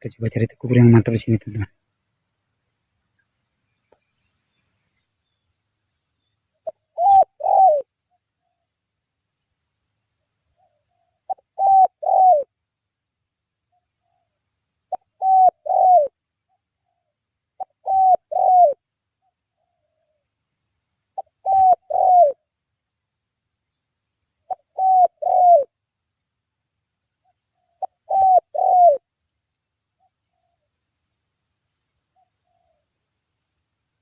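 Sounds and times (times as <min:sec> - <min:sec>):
dove cooing: 0:06.6 - 0:07.9, 0:10.6 - 0:12.5, 0:14.9 - 0:16.2, 0:16.8 - 0:18.8, 0:21.2 - 0:22.4, 0:24.4 - 0:25.7, 0:27.5 - 0:29.1.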